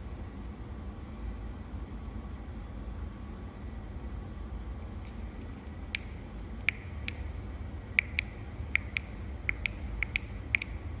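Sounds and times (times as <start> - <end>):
sharp clicks and creaks: 8.0 - 10.8.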